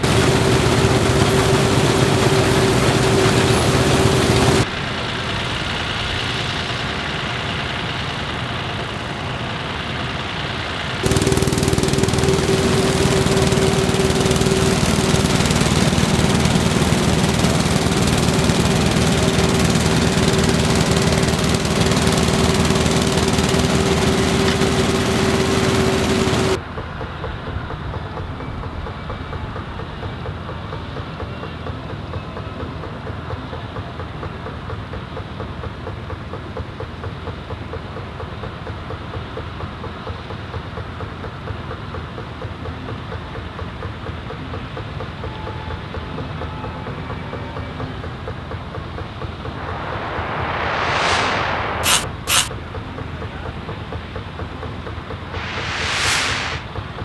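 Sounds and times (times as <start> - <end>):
combine harvester running: 0.0 - 26.6, 49.5 - 52.5, 55.4 - 56.6
constant machine whine: 0.0 - 26.6, 49.4 - 52.5, 55.4 - 56.6.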